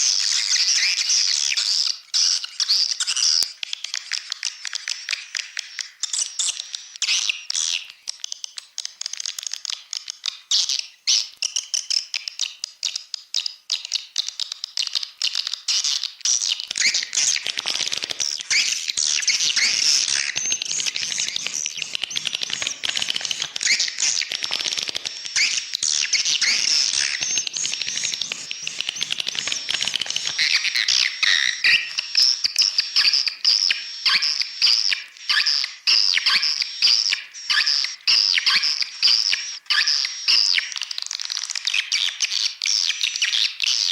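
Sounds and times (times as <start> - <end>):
swiftlets twittering chirps: 16.4 - 42.1.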